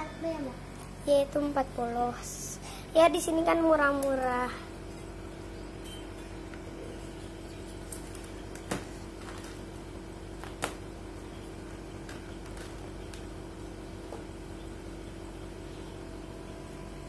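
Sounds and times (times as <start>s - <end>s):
low room hum: 0.0s - 17.0s
faint held tone: 5.5s - 7.6s.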